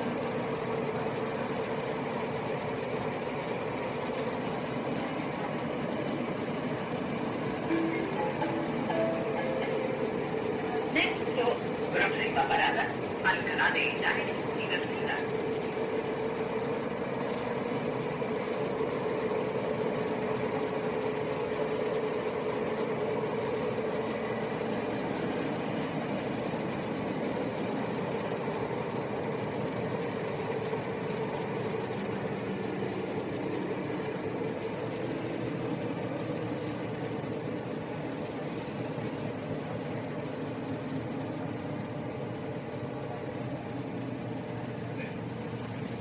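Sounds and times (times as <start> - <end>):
train rumbling: 0.0 - 46.0
humming tone: 7.6 - 11.3.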